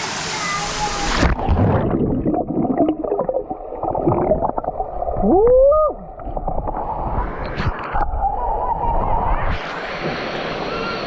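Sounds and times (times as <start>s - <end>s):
muffled waterfall underwater: 0.0s - 11.0s
water gurgling and bubbling: 1.0s - 9.3s.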